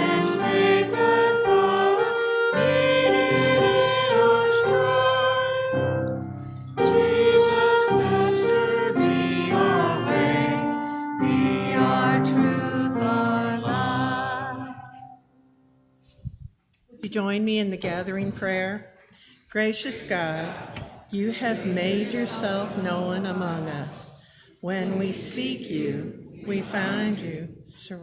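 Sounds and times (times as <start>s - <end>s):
instrumental accompaniment: 0.0s - 15.6s
church choir singing: 0.0s - 15.8s, 19.7s - 27.9s.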